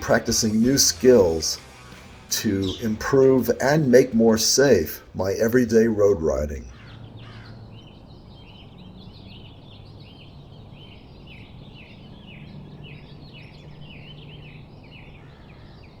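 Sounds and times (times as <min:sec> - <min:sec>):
bird chirping in quick notes: 0:06.7 - 0:16.0.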